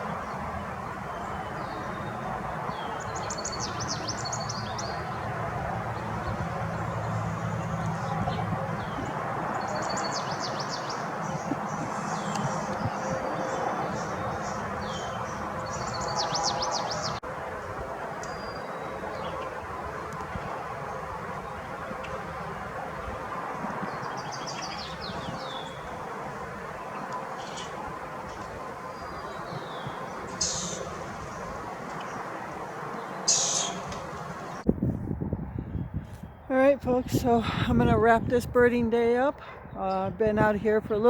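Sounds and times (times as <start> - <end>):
songbirds trilling: 0.0 - 17.2, 18.2 - 34.6
bird chirps: 29.1 - 30.9, 33.1 - 34.0.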